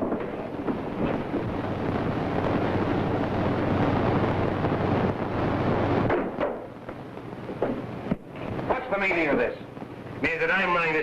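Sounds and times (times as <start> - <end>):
dense rushing noise: 0.0 - 6.8
steady low hum: 0.0 - 11.0.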